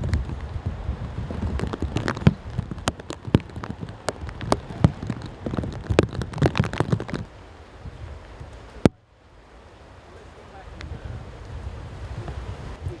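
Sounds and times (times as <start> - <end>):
heavy rain tapping: 0.0 - 7.3
low rumble of wind: 0.0 - 13.0.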